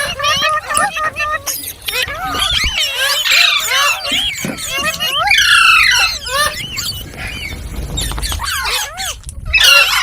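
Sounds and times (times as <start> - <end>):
parakeet squawking and whistling: 0.0 - 10.0.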